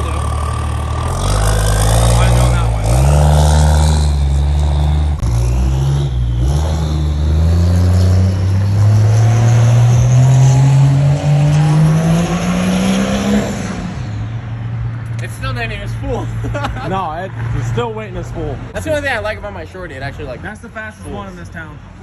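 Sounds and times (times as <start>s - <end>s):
pickup truck engine accelerating: 0.0s - 15.2s.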